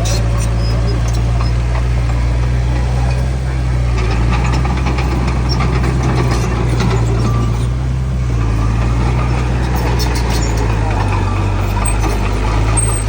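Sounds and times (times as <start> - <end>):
diesel machinery engine hum: 0.0 - 13.0
light metallic clicks and clanks: 2.8 - 7.7.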